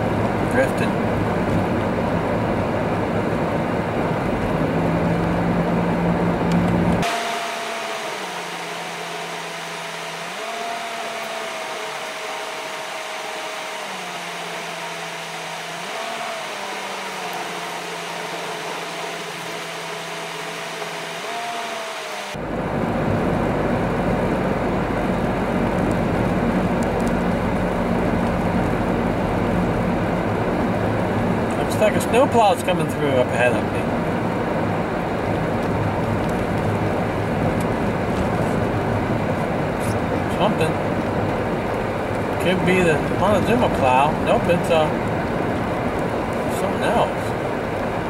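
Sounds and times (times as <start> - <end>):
car road and cabin noise: 0.0 - 48.0
faint shifting tones: 0.0 - 48.0.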